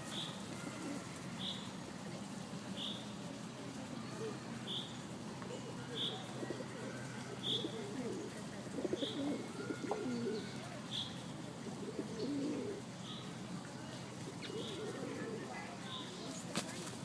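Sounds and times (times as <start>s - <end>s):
pigeons cooing: 0.0s - 1.8s, 5.6s - 13.2s, 14.1s - 16.0s.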